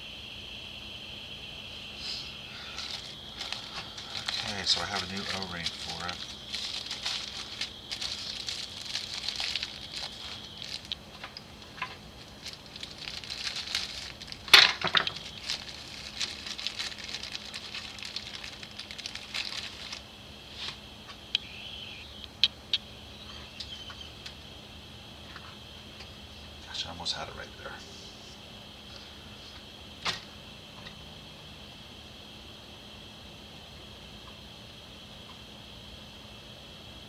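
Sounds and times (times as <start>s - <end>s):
metal parts clicking and clinking: 13.4s - 17.0s.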